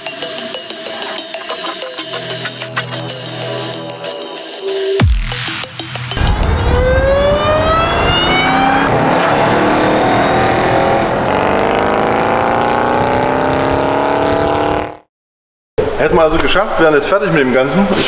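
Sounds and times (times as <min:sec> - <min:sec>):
car engine accelerating hard: 0:06.2 - 0:15.1.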